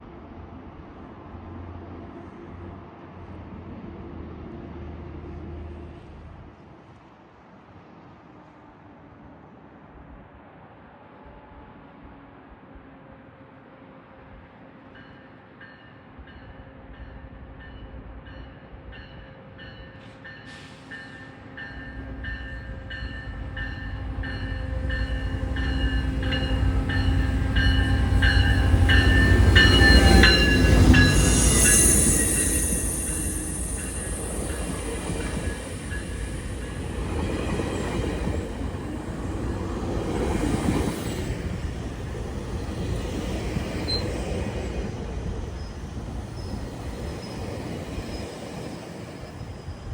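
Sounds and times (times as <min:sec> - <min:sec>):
diesel train rumbling past: 0:00.0 - 0:49.9
train wheels squealing: 0:17.7 - 0:49.9
bell ringing: 0:21.8 - 0:36.9.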